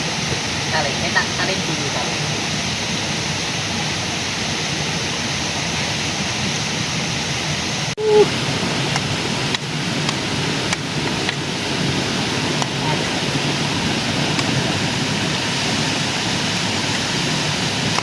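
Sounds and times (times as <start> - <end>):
short low-pitched sound: 8.0 - 8.3
river water rushing: 8.2 - 18.0.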